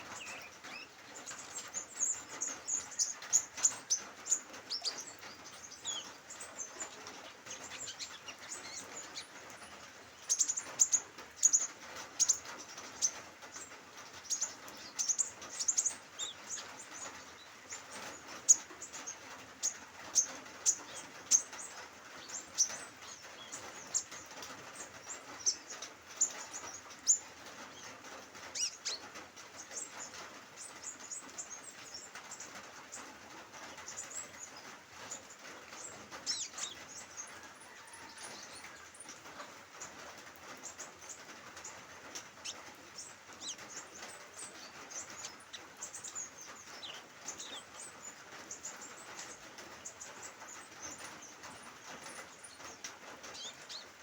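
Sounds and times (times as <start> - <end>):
bird chirping: 0.0 - 54.0.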